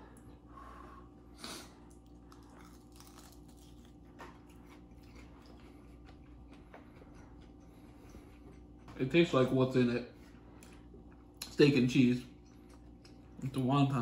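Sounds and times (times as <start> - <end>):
man chewing: 1.4 - 9.0, 12.3 - 13.5.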